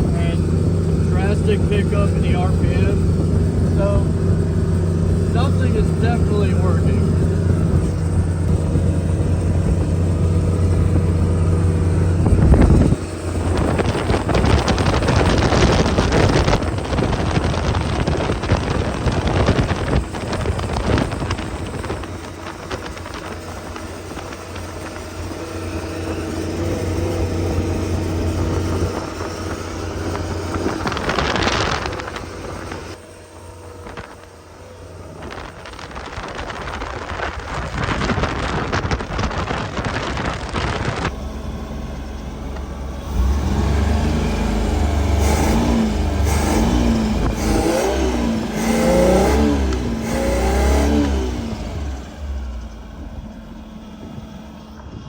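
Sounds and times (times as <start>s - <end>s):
boat motor running: 0.0s - 55.0s
rush of wind and water: 35.4s - 41.2s.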